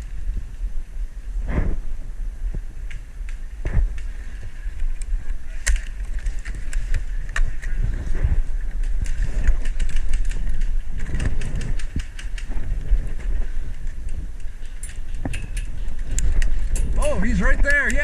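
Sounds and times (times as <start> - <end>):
wind rumble: 0.0 - 18.0
sharp clicks and snaps: 4.8 - 7.8, 8.8 - 13.0, 13.7 - 17.0.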